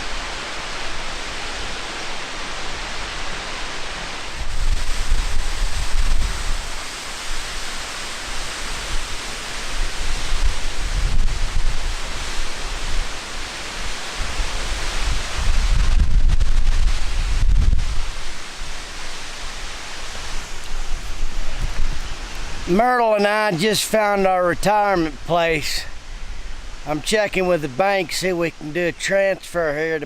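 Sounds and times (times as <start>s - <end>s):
waterfall rushing: 0.0s - 30.0s
wind buffeting microphone: 4.1s - 18.8s, 20.2s - 22.7s.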